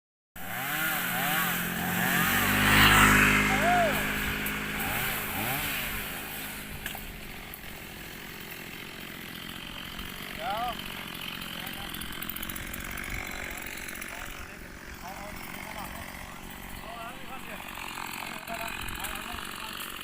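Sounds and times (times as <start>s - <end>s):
chainsaw engine revving: 0.4s - 20.0s.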